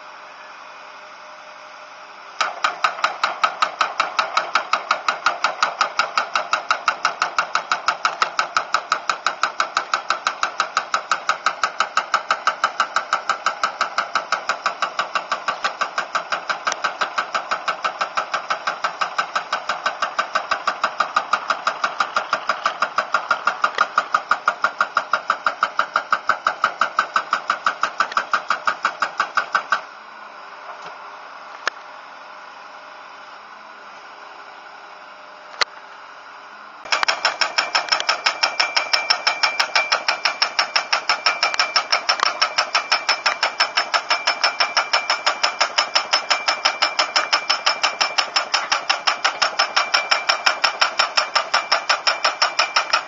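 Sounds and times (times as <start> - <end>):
excavator engine running: 0.0 - 53.0
pile driver hammer striking: 2.4 - 29.9, 36.9 - 53.0.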